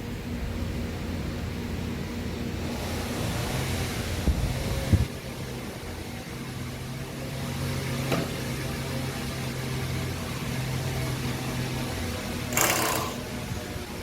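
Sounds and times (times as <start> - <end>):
motor humming: 12.5 - 13.3.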